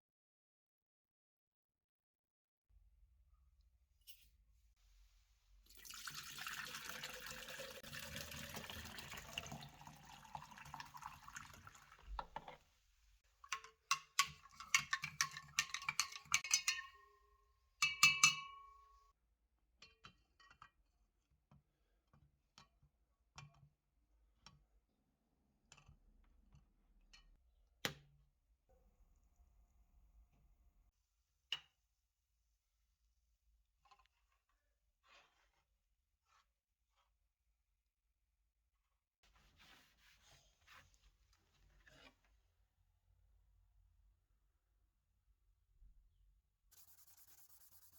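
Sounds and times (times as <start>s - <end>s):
liquid pouring: 5.7s - 12.5s.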